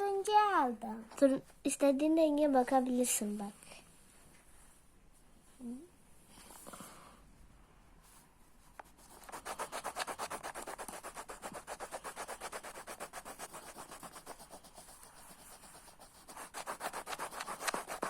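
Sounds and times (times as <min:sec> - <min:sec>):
coloured pencil scribbling on paper: 0:08.8 - 0:18.0.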